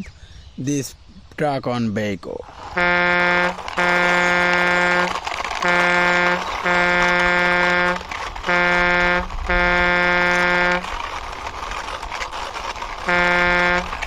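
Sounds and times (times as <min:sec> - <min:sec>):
buzzy electronic truck horn: 0:02.7 - 0:10.9, 0:13.0 - 0:14.0.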